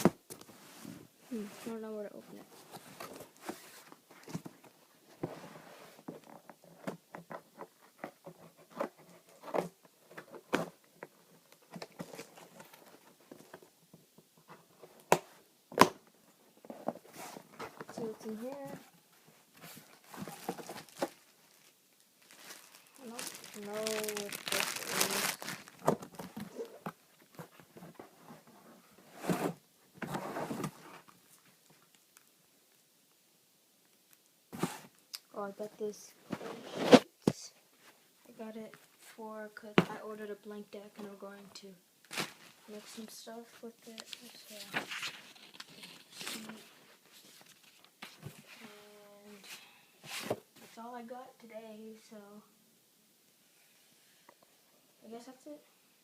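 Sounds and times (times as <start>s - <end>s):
rustling scrapes: 0.5s - 4.5s, 5.1s - 6.1s, 16.6s - 31.1s, 36.0s - 37.1s, 42.1s - 50.8s
cardboard box being rummaged: 19.6s - 26.8s.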